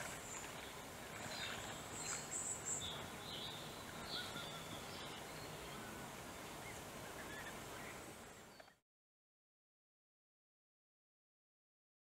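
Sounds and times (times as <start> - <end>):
faint background hiss: 0.0 - 8.8.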